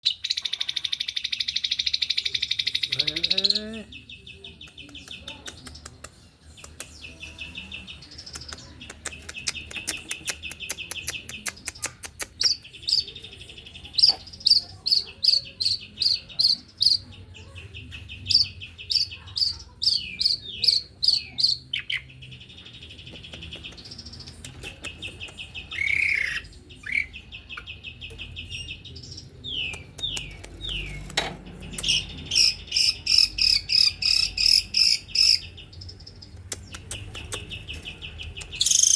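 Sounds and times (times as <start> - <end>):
bird singing buzzy trills: 12.4 - 38.9.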